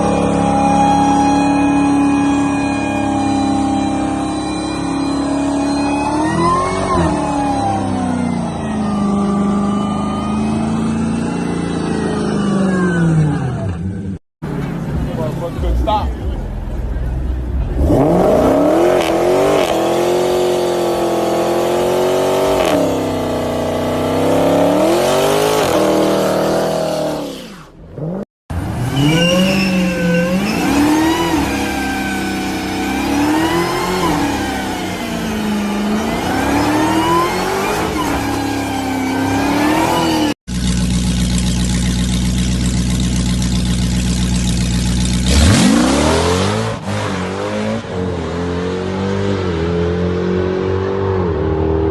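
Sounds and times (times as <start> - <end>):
car engine revving: 0.0 - 51.9
car engine idling: 40.5 - 45.4.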